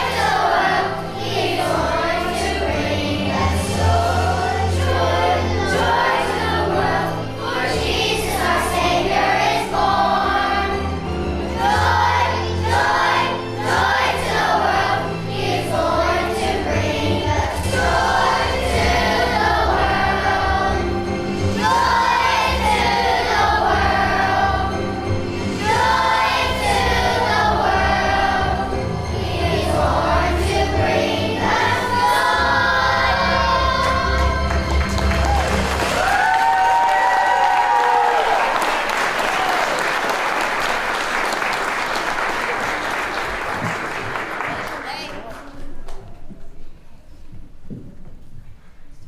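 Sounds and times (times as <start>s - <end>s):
children's choir singing: 0.0s - 45.3s
instrumental accompaniment with bass: 0.1s - 36.1s.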